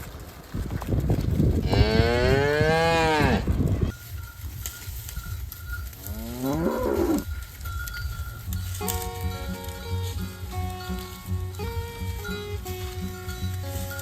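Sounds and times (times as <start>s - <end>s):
cattle mooing: 1.6s - 3.6s, 6.0s - 7.3s.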